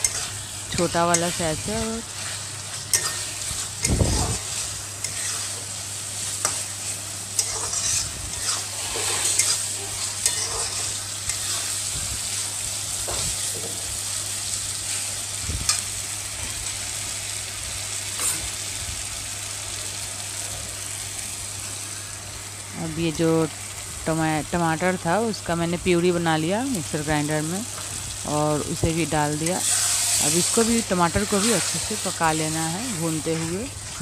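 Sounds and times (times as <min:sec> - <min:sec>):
masala sizzling in oil: 0:00.0 - 0:34.0
spatula scraping and tapping pan: 0:07.4 - 0:09.6.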